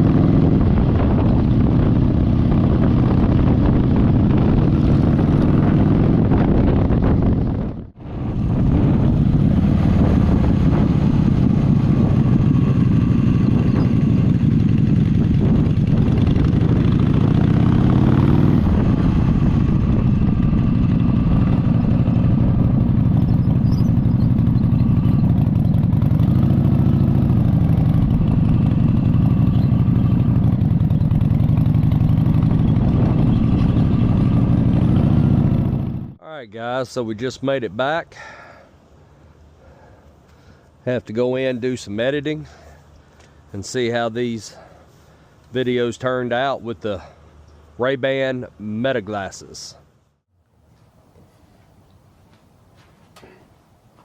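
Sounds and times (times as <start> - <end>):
motorcycle engine running: 0.0 - 36.2.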